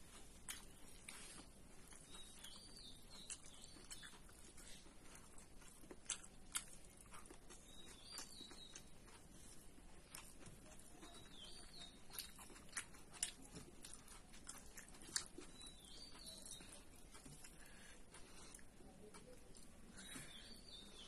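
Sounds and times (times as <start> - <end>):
person chewing: 0.0 - 21.0
faint high wavering chirp: 15.5 - 16.9.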